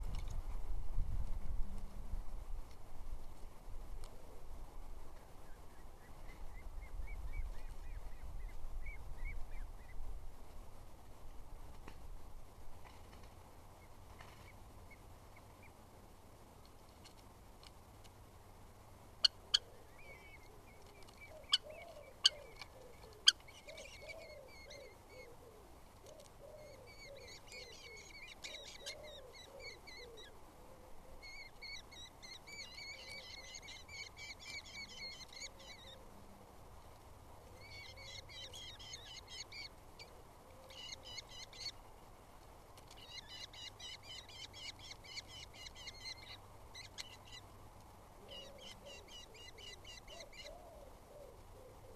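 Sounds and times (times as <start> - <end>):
small birds chirping: 19.2 - 25.4, 26.0 - 30.4, 31.2 - 36.1, 37.6 - 40.1, 42.8 - 47.6, 48.2 - 51.9
low cooing: 19.6 - 31.4, 48.2 - 51.9.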